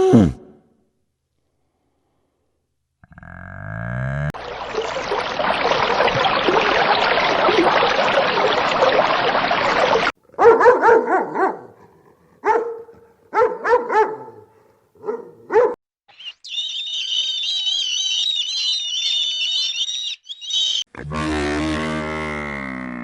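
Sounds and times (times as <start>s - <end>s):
dog yapping: 10.4s - 11.7s, 12.4s - 14.4s, 15.0s - 15.8s.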